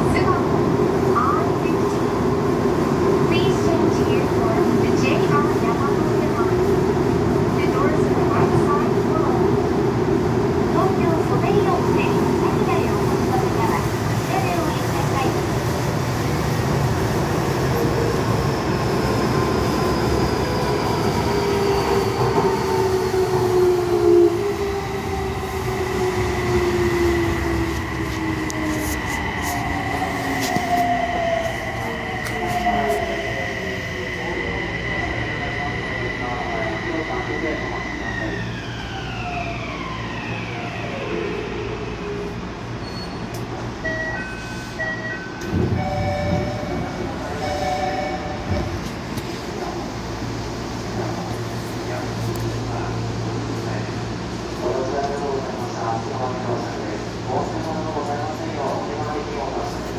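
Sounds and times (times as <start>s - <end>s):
train rumble inside carriage: 0.0s - 59.9s
train whine falling in pitch: 44.9s - 48.9s.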